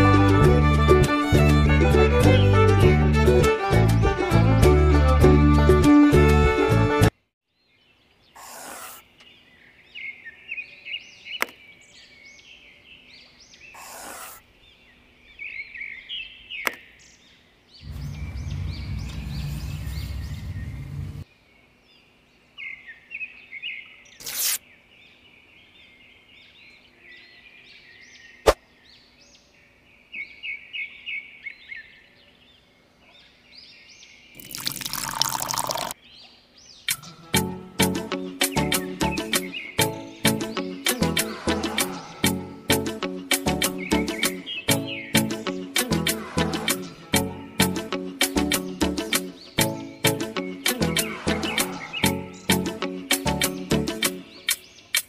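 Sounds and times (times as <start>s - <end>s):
small birds chirping: 7.5s - 55.0s
water pouring into metal tray: 34.4s - 36.0s.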